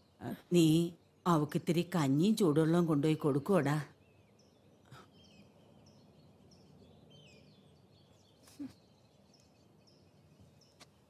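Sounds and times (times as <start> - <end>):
small birds chirping faintly: 0.0 - 11.0.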